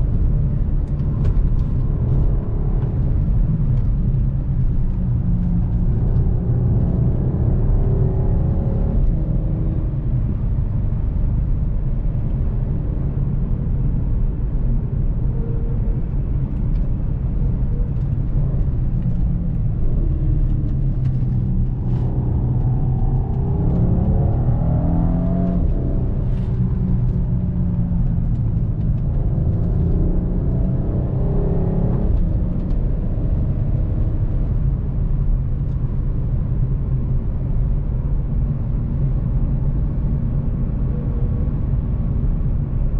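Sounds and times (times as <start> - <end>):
road and tyre noise: 0.0 - 42.9
car engine accelerating: 15.8 - 42.9.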